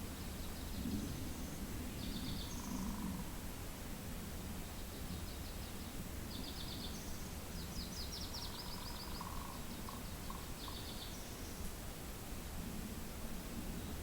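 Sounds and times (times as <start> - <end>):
songbird trilling: 8.2 - 11.2.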